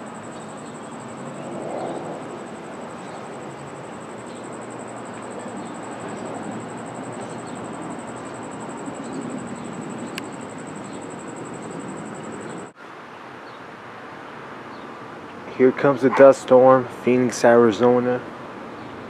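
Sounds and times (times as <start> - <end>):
faint chirps: 0.0 - 12.7
high pulsing buzz: 0.0 - 12.8
outdoor background noise: 0.0 - 19.0.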